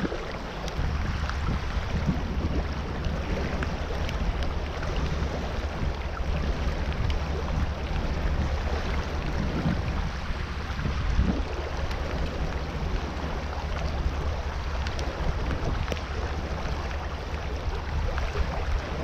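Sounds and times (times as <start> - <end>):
water rushing: 0.0 - 19.0
wind rumbling on microphone: 0.0 - 19.0
faint ticks: 14.8 - 16.1.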